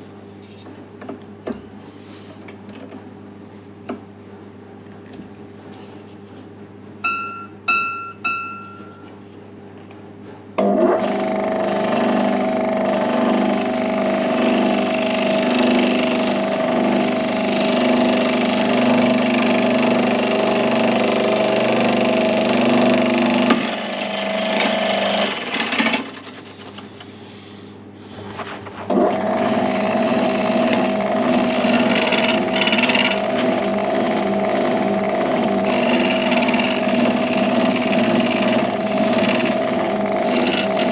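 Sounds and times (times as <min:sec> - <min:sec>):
electric saw cutting wood: 0:10.6 - 0:26.1, 0:28.9 - 0:40.9.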